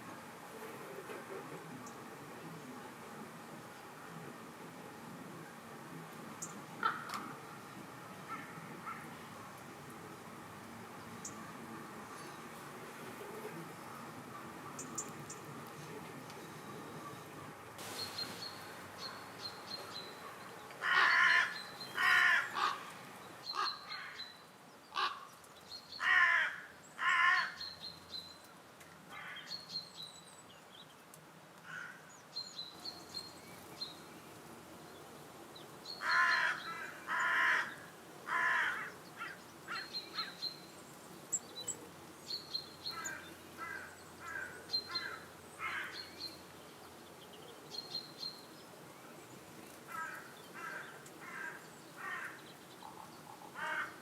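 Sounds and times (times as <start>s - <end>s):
harsh caw-like bird calls: 20.8s - 25.3s, 26.0s - 27.8s, 31.6s - 32.1s, 35.9s - 40.4s, 42.8s - 46.3s, 49.9s - 54.0s.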